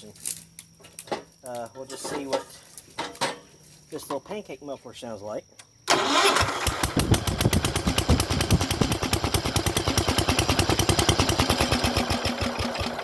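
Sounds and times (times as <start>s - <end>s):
small engine popping exhaust: 5.9s - 13.0s.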